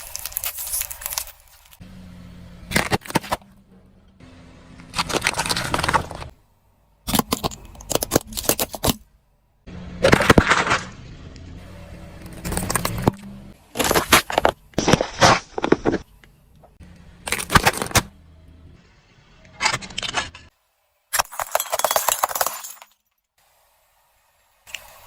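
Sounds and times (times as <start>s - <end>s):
objects crunching under car tyre: 0.0s - 1.8s, 2.7s - 3.7s, 4.8s - 6.4s, 10.0s - 11.0s, 12.2s - 16.1s
low engine hum: 1.8s - 7.0s, 9.3s - 13.7s, 18.0s - 18.8s.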